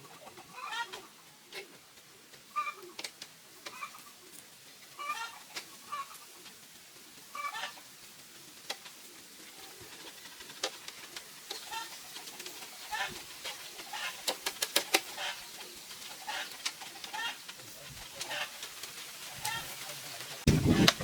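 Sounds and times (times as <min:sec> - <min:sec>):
farm birds calling: 0:00.0 - 0:06.6, 0:07.2 - 0:21.0.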